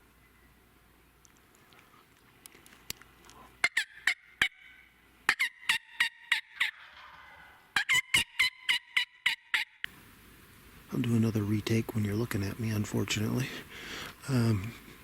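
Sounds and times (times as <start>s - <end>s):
turkey yelping: 3.6s - 9.9s.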